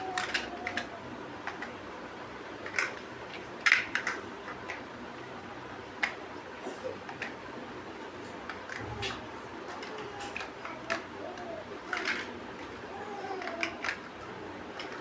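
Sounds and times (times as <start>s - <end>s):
plastic bricks clicking: 9.8s - 12.3s, 13.4s - 14.1s.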